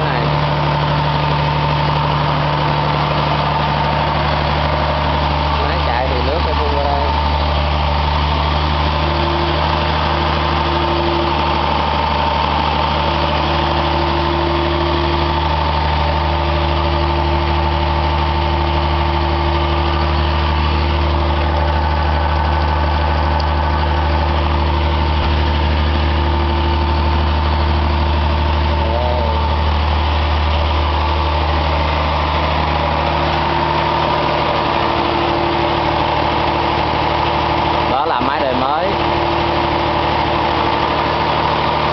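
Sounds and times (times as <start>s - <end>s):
engine humming with whine: 0.0s - 41.9s.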